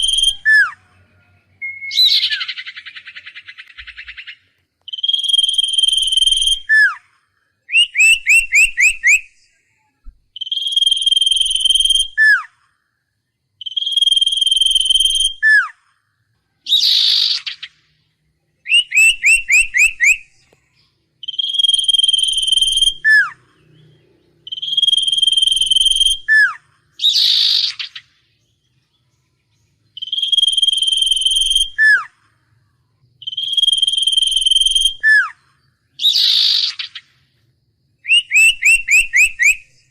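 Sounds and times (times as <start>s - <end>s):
songbird whistled phrases: 0.0s - 0.9s, 1.6s - 7.1s, 7.7s - 12.6s, 13.6s - 15.8s, 16.6s - 17.9s, 18.6s - 20.6s, 21.2s - 23.9s, 24.5s - 28.2s, 29.8s - 32.4s, 33.2s - 37.1s, 38.0s - 39.9s.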